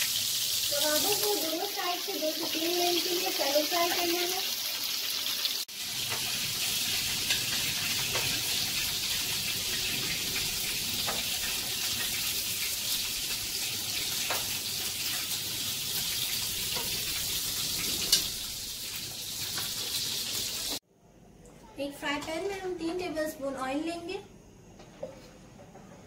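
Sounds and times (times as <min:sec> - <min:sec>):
meat sizzling in hot oil: 0:00.0 - 0:20.8.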